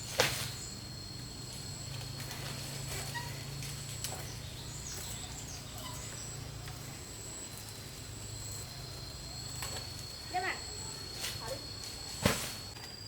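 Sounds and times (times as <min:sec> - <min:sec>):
high-pitched insect drone: 0:00.0 - 0:13.0
faint bird chirps: 0:02.9 - 0:07.6.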